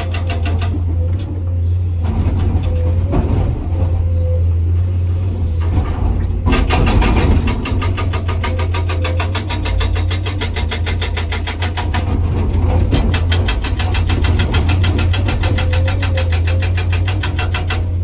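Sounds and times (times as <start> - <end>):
hydraulic breaker hammering rock: 0.0 - 1.3, 5.6 - 18.0
diesel engine drone: 0.0 - 18.0.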